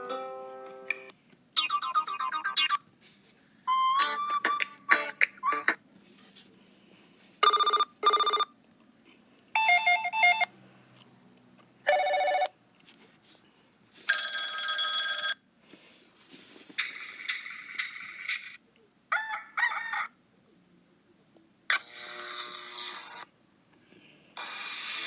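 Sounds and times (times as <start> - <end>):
phone ringtones: 7.4 - 8.5, 9.6 - 10.5, 11.9 - 12.6, 14.1 - 15.4.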